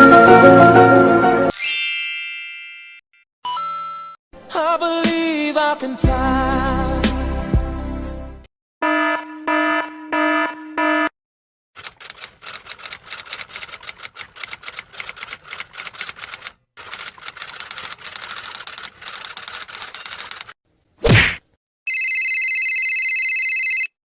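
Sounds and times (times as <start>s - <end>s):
rapid typing on keyboard: 11.8s - 20.6s.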